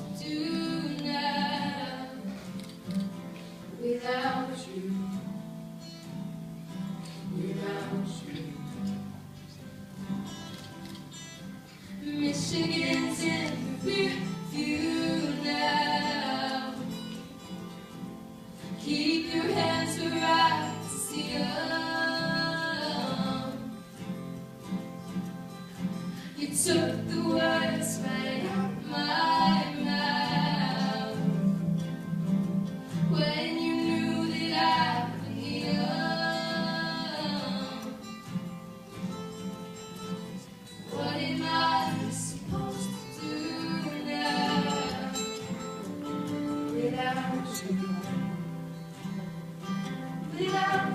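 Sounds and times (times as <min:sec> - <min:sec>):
guitar accompaniment: 0:00.0 - 0:50.9
person singing: 0:40.9 - 0:48.4.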